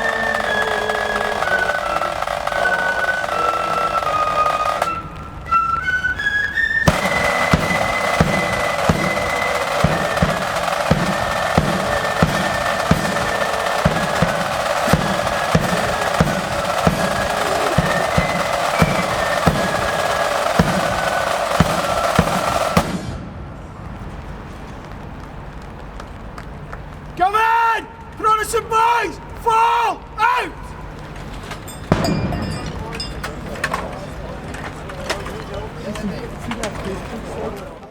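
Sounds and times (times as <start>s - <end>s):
snare drum rolls: 0.0s - 5.6s, 6.8s - 23.5s, 31.8s - 35.5s
flutes playing melody: 0.0s - 22.9s
bass drum beat: 6.9s - 23.0s.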